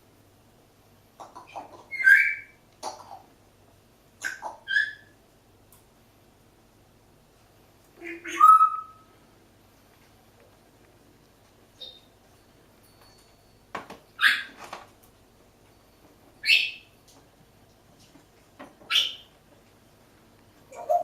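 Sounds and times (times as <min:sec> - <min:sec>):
faint parrot chirp: 0:01.2 - 0:03.1, 0:04.2 - 0:05.2, 0:08.0 - 0:09.1, 0:11.8 - 0:12.2, 0:14.2 - 0:14.6, 0:16.4 - 0:17.0, 0:18.9 - 0:19.3
parrot squawks: 0:01.4 - 0:02.6, 0:04.2 - 0:05.2, 0:08.0 - 0:09.1, 0:14.2 - 0:14.5, 0:18.9 - 0:19.3.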